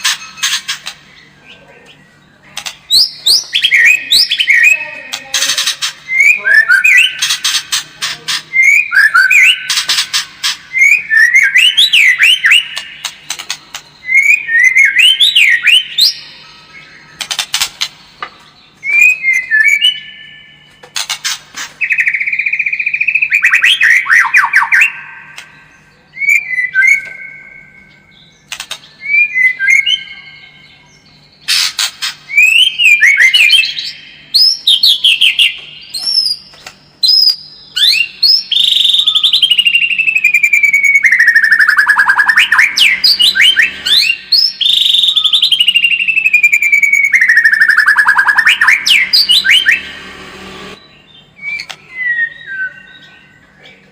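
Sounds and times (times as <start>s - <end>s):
songbird whistling and clicking: 1.9s - 16.2s, 17.2s - 25.6s, 26.2s - 27.7s, 28.4s - 30.1s, 31.5s - 49.9s, 51.4s - 53.1s
long descending bird whistle: 37.0s - 50.0s, 50.8s - 53.1s.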